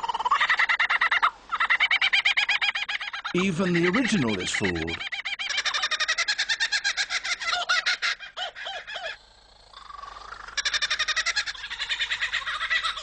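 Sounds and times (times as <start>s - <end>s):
lyrebird singing: 1.6s - 9.2s.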